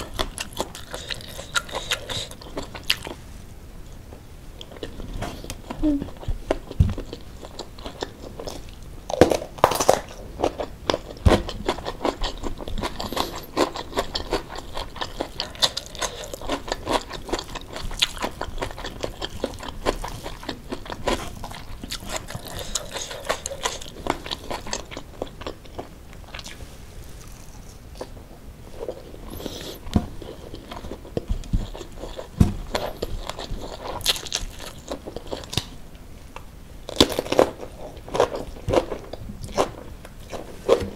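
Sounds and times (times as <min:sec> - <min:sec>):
mouth chewing food: 0:00.0 - 0:03.2, 0:04.6 - 0:35.8.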